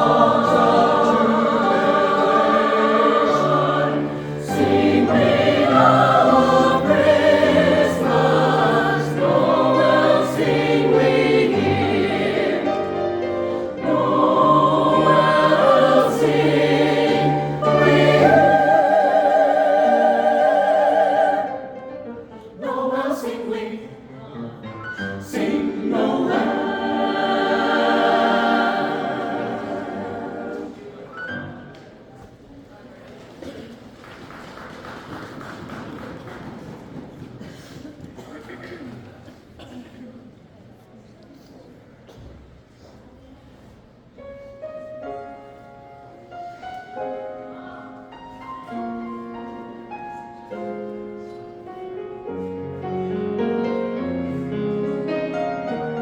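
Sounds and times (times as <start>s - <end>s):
choir singing with vibrato: 0.0s - 31.1s.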